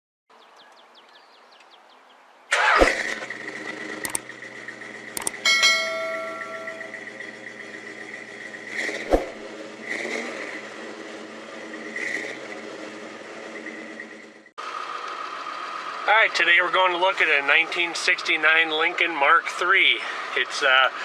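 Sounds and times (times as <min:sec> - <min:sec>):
car engine starting and running: 0:02.5 - 0:21.0
sharp clicks: 0:04.0 - 0:04.3, 0:05.1 - 0:05.4.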